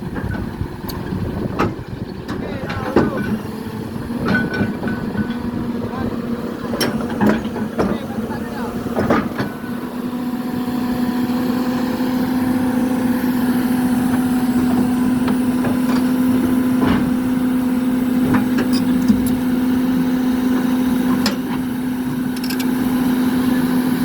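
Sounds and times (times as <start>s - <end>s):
machine knocks and clanks: 0.0s - 10.2s, 12.4s - 19.8s
excavator diesel engine running: 0.0s - 24.0s.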